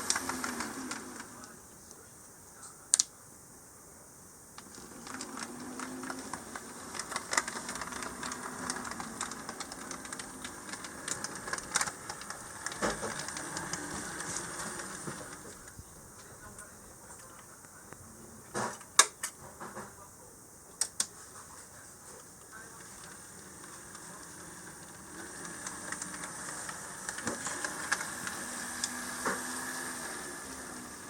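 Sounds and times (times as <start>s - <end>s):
small motor hum: 0.0s - 1.4s, 4.6s - 15.5s, 23.1s - 31.0s
model train wheels clicking: 0.0s - 1.6s, 4.6s - 15.8s, 22.2s - 31.0s.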